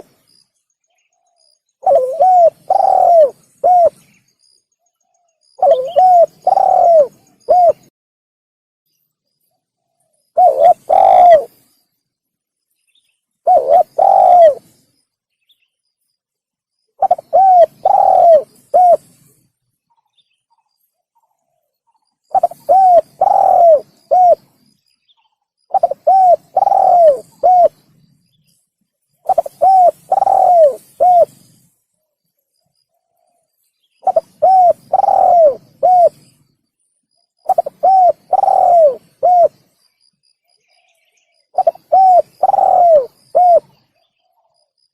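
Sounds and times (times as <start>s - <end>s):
dove cooing: 1.8s - 4.1s, 5.5s - 7.9s, 10.4s - 11.6s, 13.4s - 14.8s, 17.0s - 19.3s, 22.3s - 24.6s, 25.7s - 27.9s, 29.2s - 31.6s, 34.0s - 36.3s, 37.4s - 39.6s, 41.5s - 43.8s.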